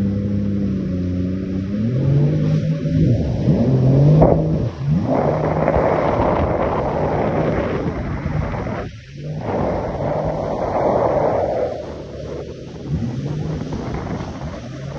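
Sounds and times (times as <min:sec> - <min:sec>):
jet ski engine running: 0:00.0 - 0:14.9
rushing hiss of spray and wind: 0:02.3 - 0:14.9.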